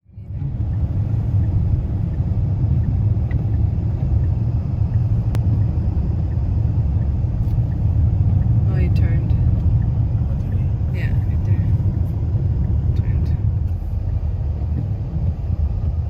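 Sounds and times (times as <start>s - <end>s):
car driving rumble: 0.0s - 16.0s
click: 5.3s - 5.5s.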